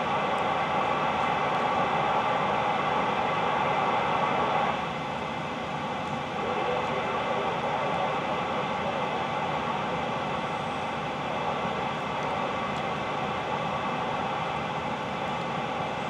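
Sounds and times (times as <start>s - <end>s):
radio static hiss: 0.0s - 4.9s, 6.2s - 15.3s.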